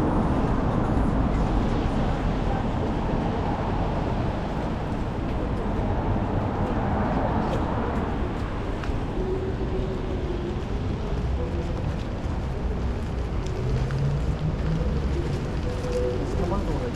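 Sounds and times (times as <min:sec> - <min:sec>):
rumble of passing vehicles: 0:00.0 - 0:16.9.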